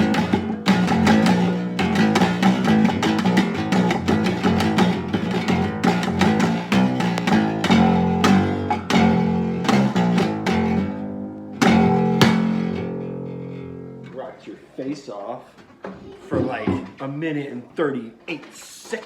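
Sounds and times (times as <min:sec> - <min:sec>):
plucked string instrument: 0:00.0 - 0:14.7.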